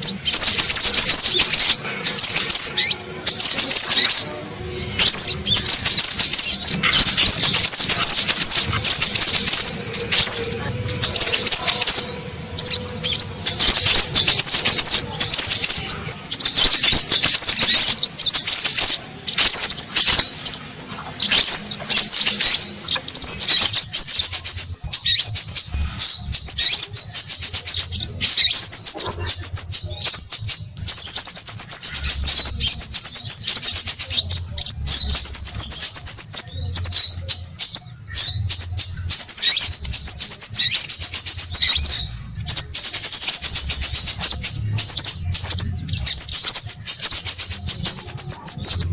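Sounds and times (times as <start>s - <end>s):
birds calling with high whistles: 0.0s - 48.9s.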